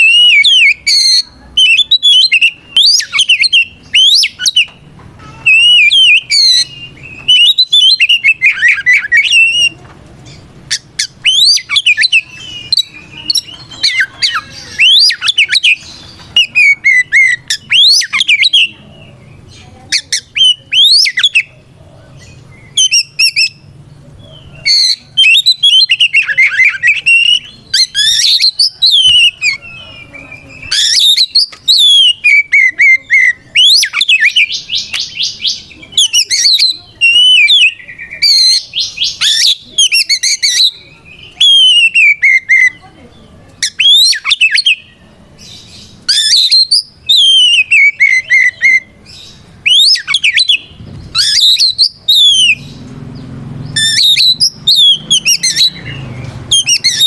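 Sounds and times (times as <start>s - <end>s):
magpie-robin singing: 0.0s - 57.0s.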